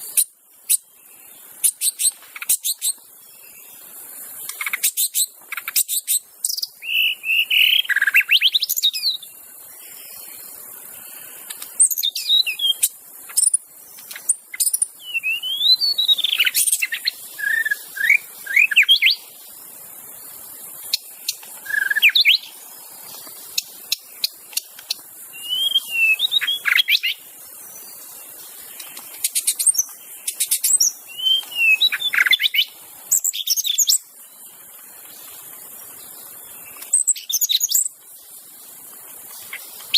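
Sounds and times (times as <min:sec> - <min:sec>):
bird singing whistled phrases: 0:06.5 - 0:09.3, 0:11.8 - 0:13.6, 0:14.6 - 0:19.3, 0:21.6 - 0:22.6, 0:25.3 - 0:27.2, 0:29.3 - 0:34.0.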